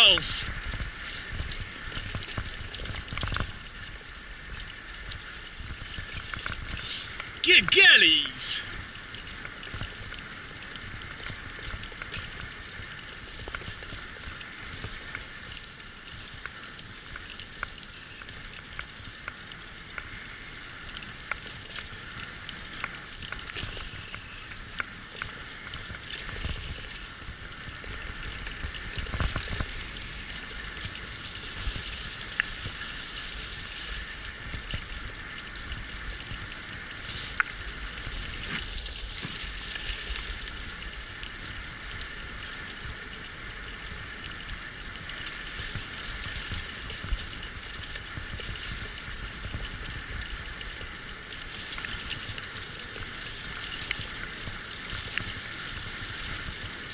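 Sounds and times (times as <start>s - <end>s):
sled rig crackling hiss on trail: 0.0s - 56.9s.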